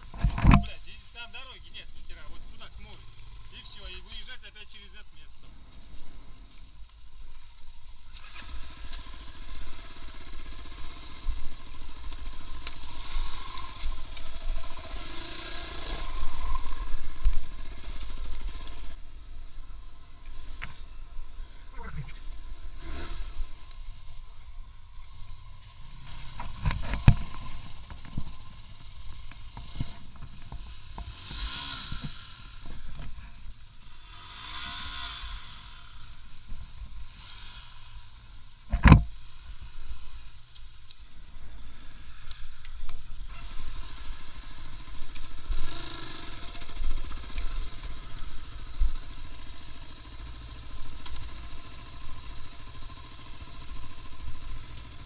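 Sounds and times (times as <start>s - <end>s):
vehicle rumbling over rough ground: 0.0s - 55.0s
sharp thump: 38.7s - 39.1s.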